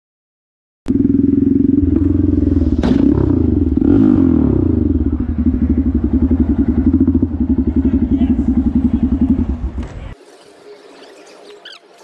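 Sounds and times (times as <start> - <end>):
motorcycle engine running: 0.9 - 10.2.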